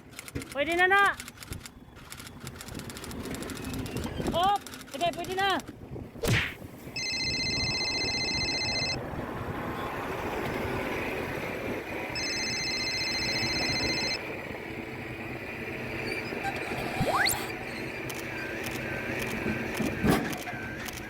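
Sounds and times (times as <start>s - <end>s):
truck engine running: 6.9s - 21.0s.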